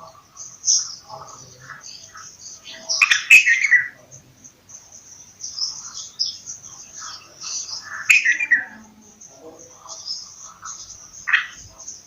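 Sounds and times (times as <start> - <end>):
high-pitched twittering: 0.0 - 12.0
bulbul chirping: 5.1 - 12.0.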